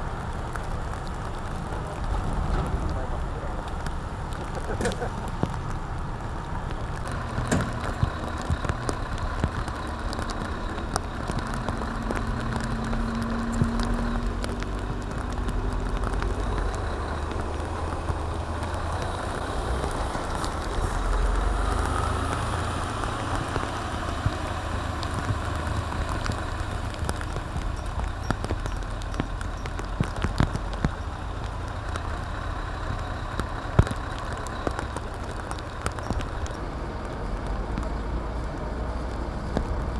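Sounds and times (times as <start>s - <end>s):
truck diesel engine running: 0.0s - 39.9s
sharp clicks and knocks: 6.7s - 20.9s.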